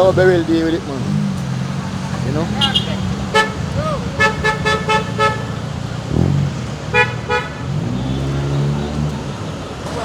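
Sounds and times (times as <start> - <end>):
vehicle engine running: 0.0 - 9.4
car horn short beeps: 2.6 - 5.6.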